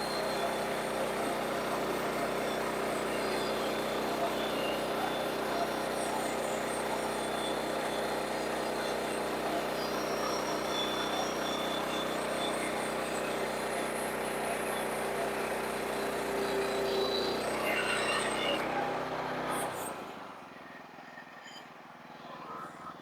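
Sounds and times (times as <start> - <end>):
engine running steadily: 0.0 - 23.0.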